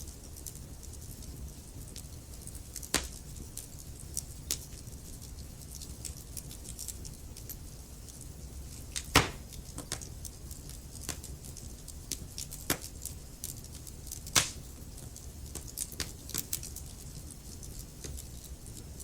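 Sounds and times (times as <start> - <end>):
fire crackling: 0.0 - 19.0
low rumble of flames: 0.0 - 19.0
sharp pops of burning logs: 2.6 - 3.5, 8.9 - 10.1, 10.7 - 13.0, 14.2 - 14.8, 15.5 - 16.7.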